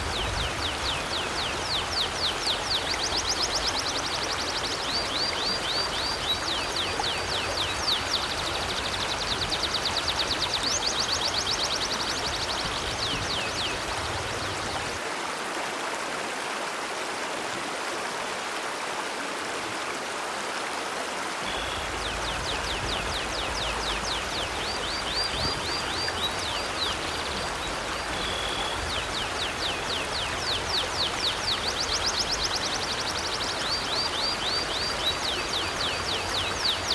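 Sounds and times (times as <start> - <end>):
river water flowing: 0.0 - 36.9
bird chirping: 21.4 - 36.9
whistled bird notes: 28.1 - 30.6.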